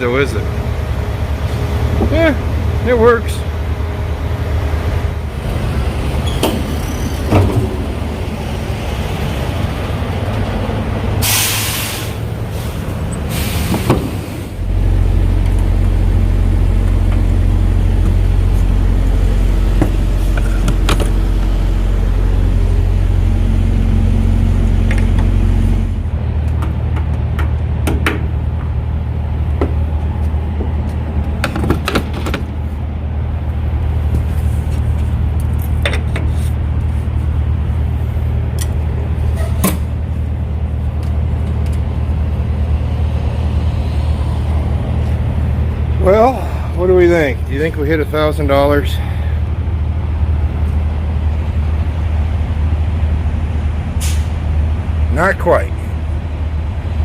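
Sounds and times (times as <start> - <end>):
diesel truck engine running: 0.0 - 57.0
air release hisses: 11.2 - 14.4.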